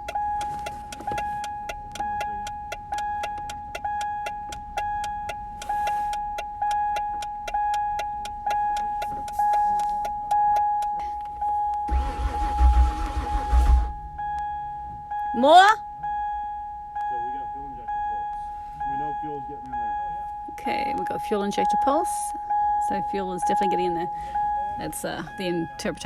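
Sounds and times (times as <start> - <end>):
car door warning chime beeping: 0.0 - 26.0.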